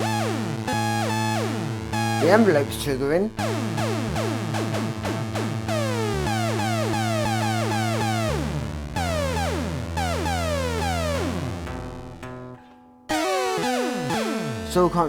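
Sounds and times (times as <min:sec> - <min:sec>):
guitar synthesizer sweeps: 0:00.0 - 0:11.9, 0:13.1 - 0:15.0.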